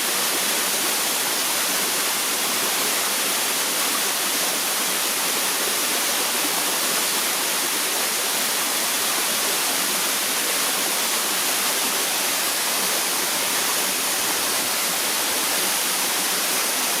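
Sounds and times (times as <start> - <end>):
waterfall pouring into stream: 0.0 - 17.0.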